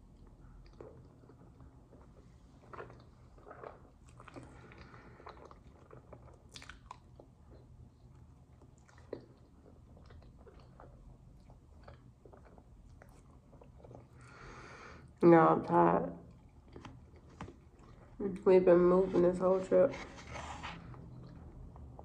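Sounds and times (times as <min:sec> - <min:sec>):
person chewing with mouth smacks: 0:00.1 - 0:14.4, 0:16.2 - 0:18.2.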